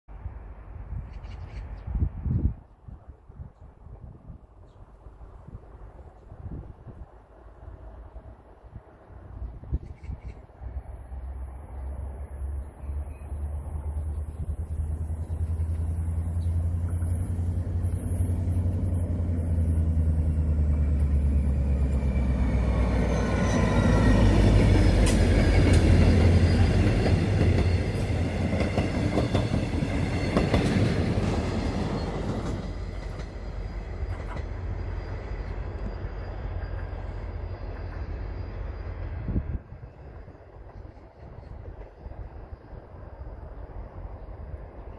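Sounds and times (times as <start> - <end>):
locomotive engine drone: 10.6 - 44.9
high wheel squeal: 16.9 - 28.4, 31.8 - 39.4.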